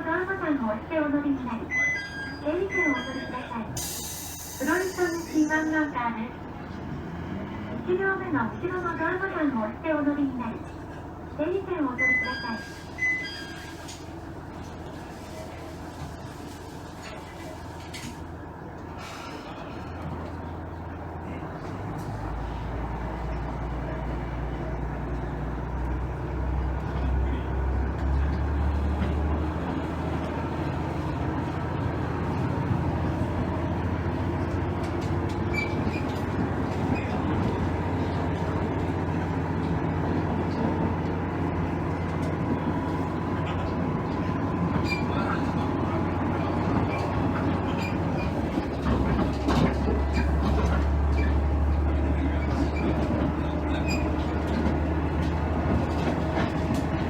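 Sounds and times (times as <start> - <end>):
diesel engine droning: 18.2 - 57.0
train wheels clicking on rails: 27.8 - 57.0.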